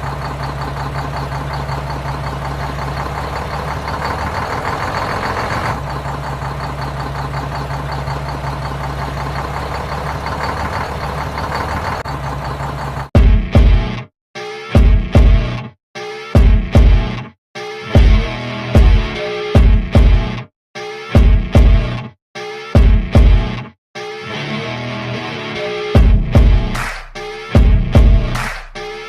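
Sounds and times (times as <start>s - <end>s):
engine idling: 0.0s - 13.2s.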